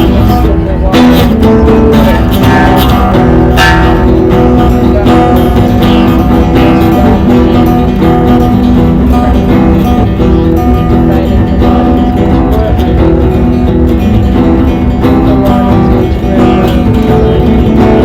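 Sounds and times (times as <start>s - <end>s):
strummed acoustic guitar music: 0.0s - 18.0s.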